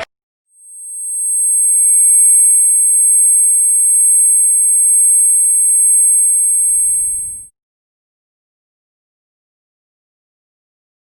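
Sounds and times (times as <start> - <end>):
high-pitched electronic tone: 0.6 - 7.5.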